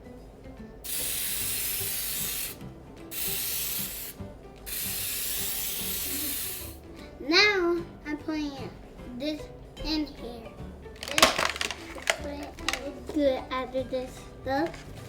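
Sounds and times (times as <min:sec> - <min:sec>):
aerosol spray hissing: 0:00.9 - 0:06.8.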